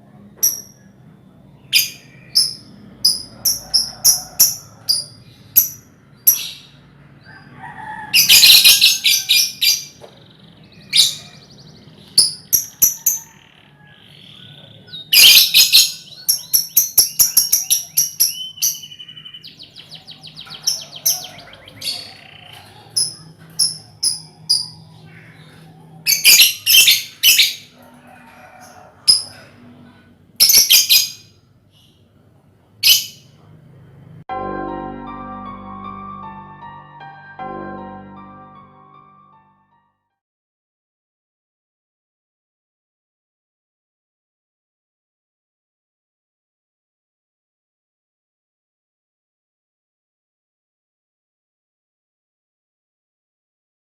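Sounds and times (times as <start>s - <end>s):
lovebirds chirping and chattering: 0.2s - 7.5s, 8.2s - 27.7s, 30.4s - 32.1s.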